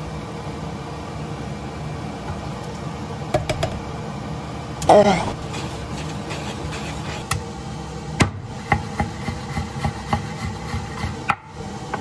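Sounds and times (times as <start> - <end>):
steady background hum: 0.0 - 12.0
wooden spoon stirring sauce in pan: 5.4 - 7.3
knife chopping on wooden board: 8.2 - 11.4.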